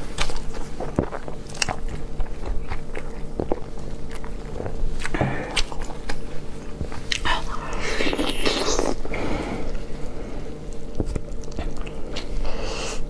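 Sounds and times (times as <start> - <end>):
chewing close to microphone: 0.0 - 13.0.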